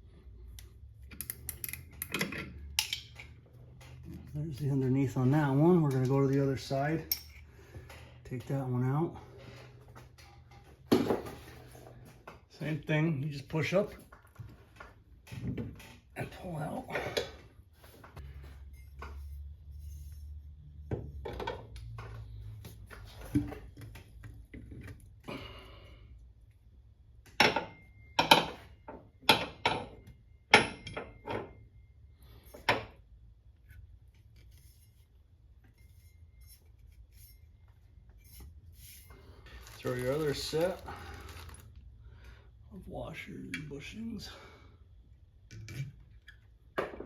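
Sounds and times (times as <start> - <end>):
metal parts clinking and clanking: 1.1 - 4.4, 5.8 - 8.6, 39.5 - 41.6.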